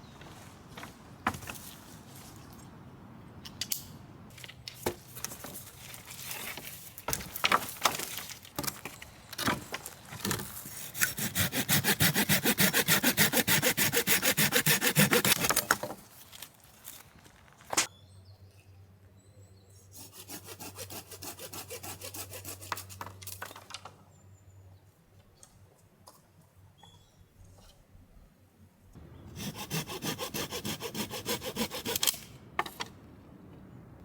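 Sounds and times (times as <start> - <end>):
folding saw cutting firewood: 9.4 - 17.0, 20.0 - 23.4, 29.3 - 32.7.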